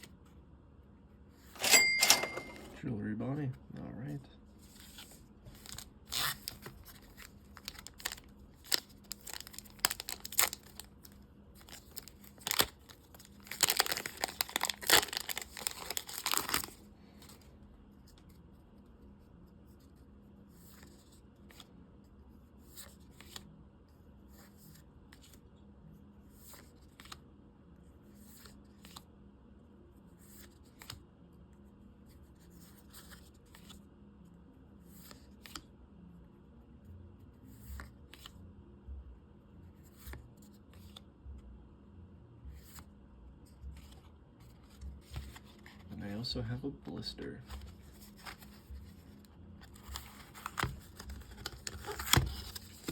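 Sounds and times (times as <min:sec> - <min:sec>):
cards being handled: 0:04.6 - 0:18.4, 0:20.6 - 0:21.7, 0:22.7 - 0:23.4, 0:26.4 - 0:27.2, 0:43.7 - 0:46.0, 0:47.4 - 0:52.9
wrapper tearing and crinkling: 0:05.6 - 0:16.8.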